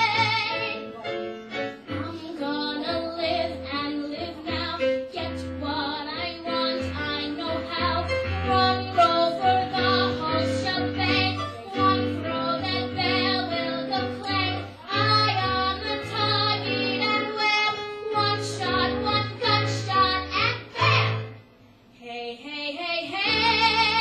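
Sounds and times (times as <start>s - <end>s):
woman singing a show tune: 2.0s - 21.0s.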